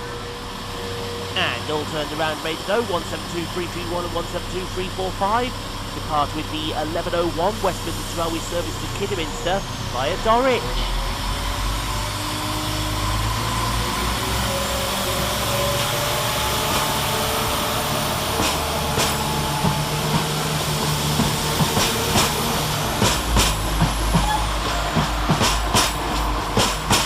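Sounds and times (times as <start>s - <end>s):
diesel train engines under power: 0.0s - 27.0s
wheels clicking over track joints: 18.2s - 27.0s.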